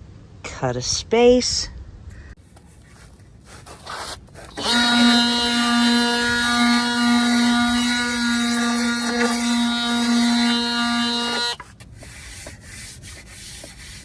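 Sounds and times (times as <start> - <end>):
power tool cutting: 4.5 - 11.6.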